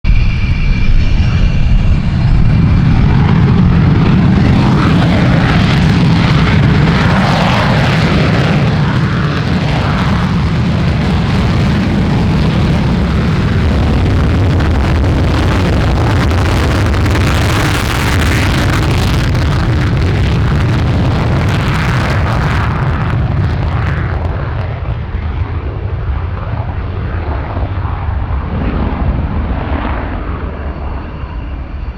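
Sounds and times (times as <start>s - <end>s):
jet engines in afterburner: 0.0s - 31.9s
faint high whine: 0.1s - 10.1s, 28.6s - 31.9s.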